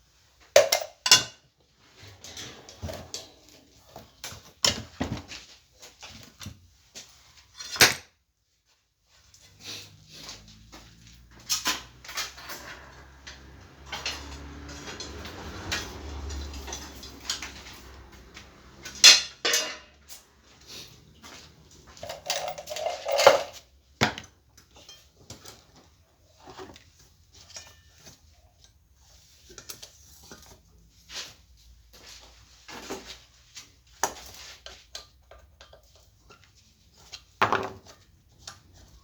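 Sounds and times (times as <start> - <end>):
metal tools clinking: 11.4 - 18.0, 18.8 - 20.0, 21.9 - 23.6
sharp metal clanks: 19.0 - 19.9.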